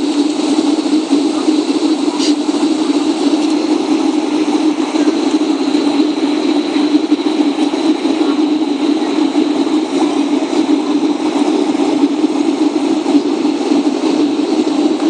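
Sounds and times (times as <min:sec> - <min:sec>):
airplane cabin engine noise: 0:00.0 - 0:15.0
high whine: 0:00.0 - 0:15.0.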